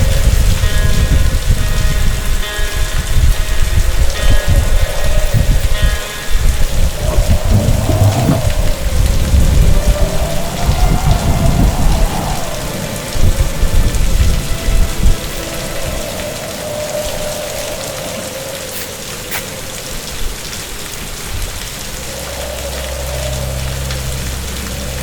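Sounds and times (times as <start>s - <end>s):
thunder rumbling: 0.0s - 19.7s
heavy rain hissing: 0.0s - 25.0s.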